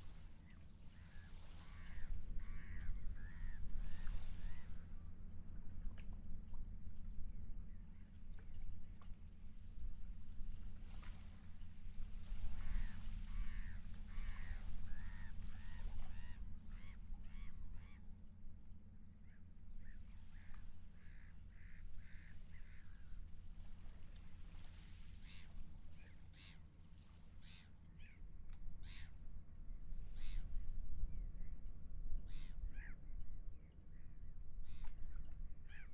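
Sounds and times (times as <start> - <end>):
seagulls calling: 12.6 - 18.0.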